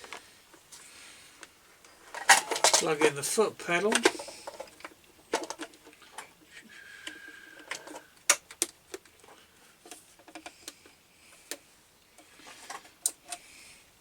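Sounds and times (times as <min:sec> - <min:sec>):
clicks and knocks of handling: 0:03.8 - 0:06.3, 0:07.1 - 0:11.6.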